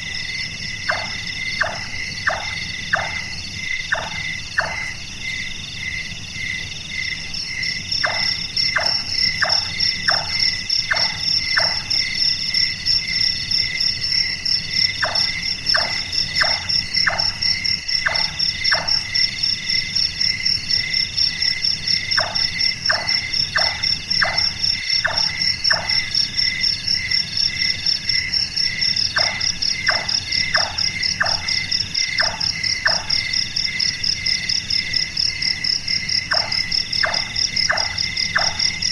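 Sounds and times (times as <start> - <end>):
crickets and frogs chorus: 0.0 - 38.9
nightjar tok calls: 3.9 - 5.0, 8.0 - 12.0.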